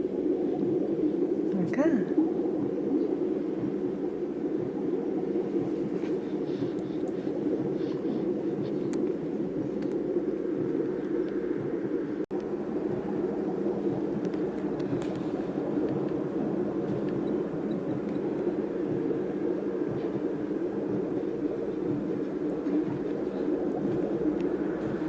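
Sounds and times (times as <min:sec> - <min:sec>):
white noise machine rumbling: 0:00.0 - 0:25.0.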